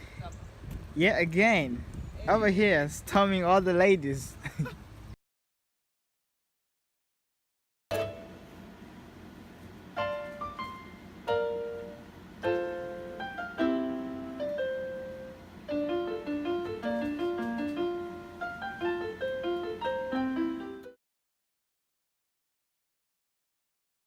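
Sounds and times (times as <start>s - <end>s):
solo piano: 10.0s - 21.0s.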